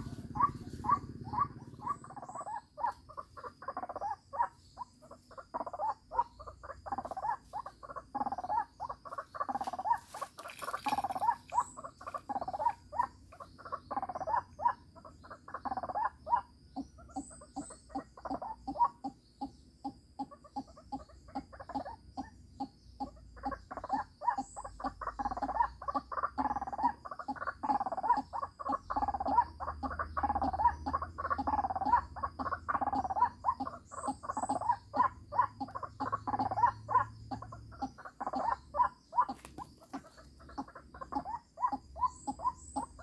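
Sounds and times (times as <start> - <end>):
waterhen calling: 0.0 - 4.5, 5.3 - 16.4, 23.4 - 43.0.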